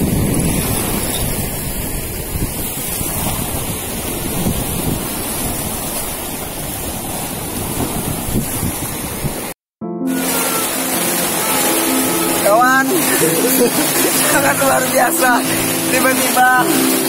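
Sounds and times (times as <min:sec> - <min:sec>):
wind buffeting microphone: 0:00.0 - 0:09.6
breaking surf: 0:00.0 - 0:17.0.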